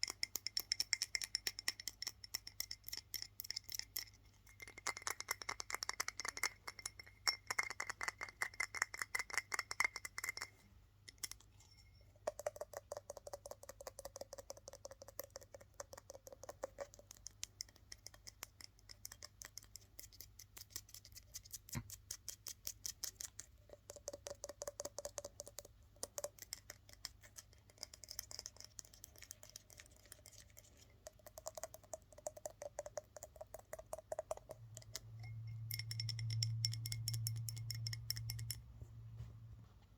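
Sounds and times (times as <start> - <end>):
objects ringing faintly: 9.4 - 12.2, 34.7 - 39.1.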